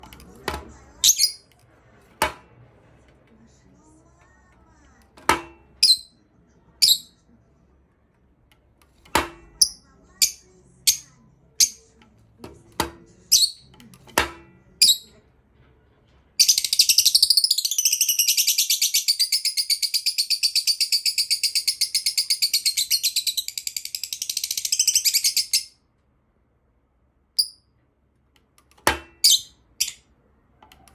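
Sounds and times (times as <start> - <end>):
lovebird high-pitched chatter: 1.0 - 1.5, 16.4 - 25.8, 29.2 - 30.0
lovebird chirps: 16.4 - 25.7, 29.2 - 30.0.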